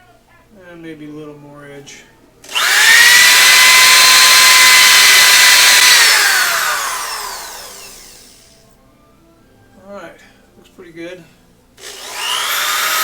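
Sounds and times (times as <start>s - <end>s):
power sander whining: 2.5s - 8.6s, 11.8s - 13.0s
sander spinning down: 2.5s - 8.6s, 11.8s - 13.0s.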